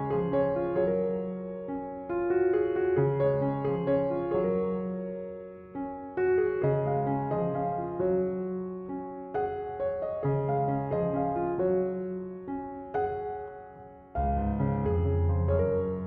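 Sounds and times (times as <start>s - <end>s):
gentle keyboard music with bass: 14.2s - 16.0s.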